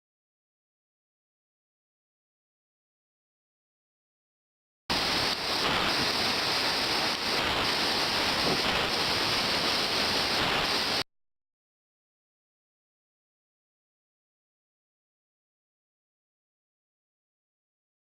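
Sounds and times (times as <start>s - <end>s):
waterfall rushing: 4.9s - 11.0s.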